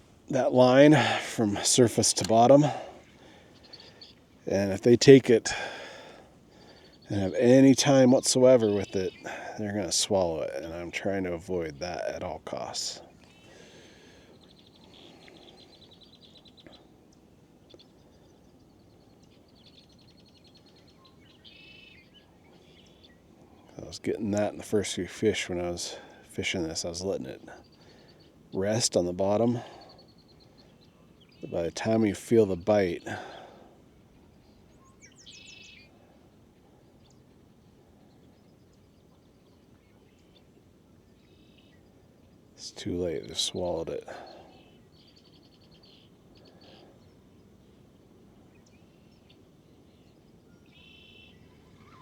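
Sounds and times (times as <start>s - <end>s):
bird trilling: 0.0s - 9.6s, 48.5s - 52.0s
bird chirping call: 0.0s - 52.0s
faint outdoor background: 0.0s - 52.0s.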